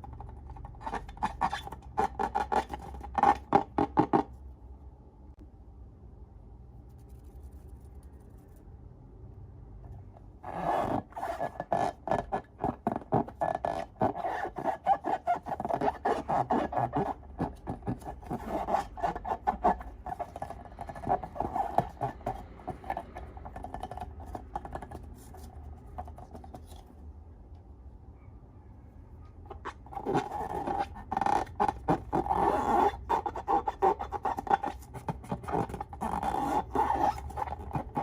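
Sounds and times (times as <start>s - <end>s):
hands scraping slime and rubber: 0.0s - 4.4s, 10.4s - 27.0s, 29.5s - 38.0s.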